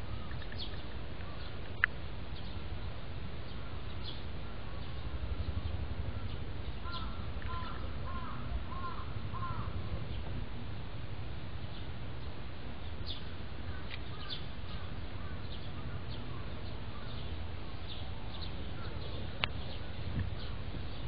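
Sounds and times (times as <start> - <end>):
steady low rumble: 0.0 - 21.0
bird calling: 3.5 - 10.3, 12.8 - 21.0.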